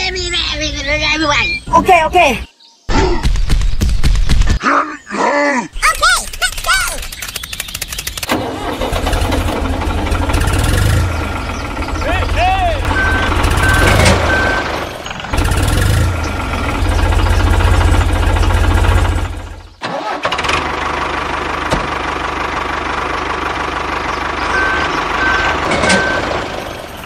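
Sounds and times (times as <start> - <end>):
tractor engine pulsing: 5.8 - 27.0
steady engine running: 7.1 - 27.0.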